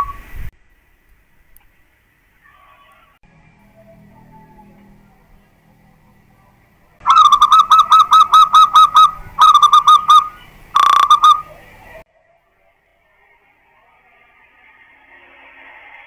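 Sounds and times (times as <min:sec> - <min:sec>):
dove cooing: 0:07.0 - 0:12.0.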